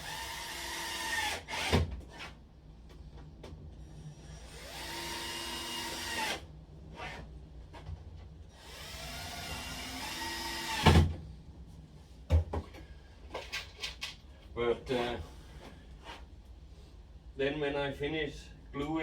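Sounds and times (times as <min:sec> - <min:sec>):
power drill driving screws: 0:00.0 - 0:01.8, 0:04.4 - 0:06.4, 0:08.6 - 0:11.0.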